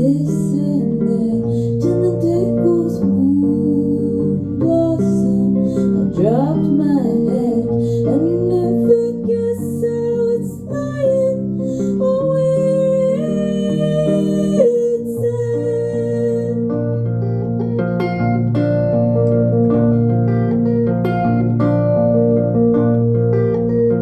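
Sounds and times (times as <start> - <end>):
woman singing: 0.0 - 17.6
live band music with guitar: 0.0 - 24.0.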